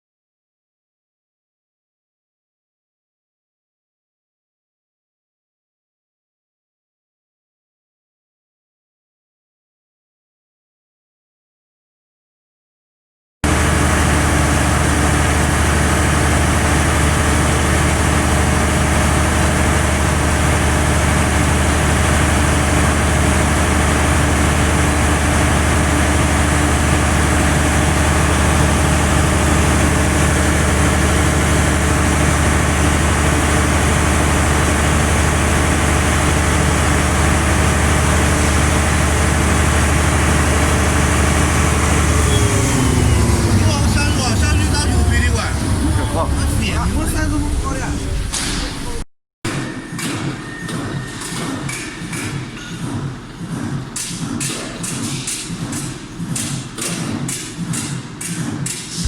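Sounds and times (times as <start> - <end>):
diesel generator running: 13.4 - 49.0.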